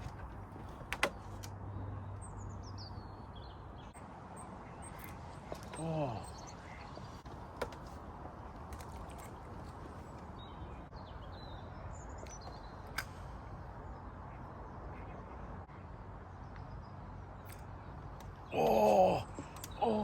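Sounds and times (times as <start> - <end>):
faint bird calls: 0.0 - 7.9
outdoor background noise: 0.0 - 20.0.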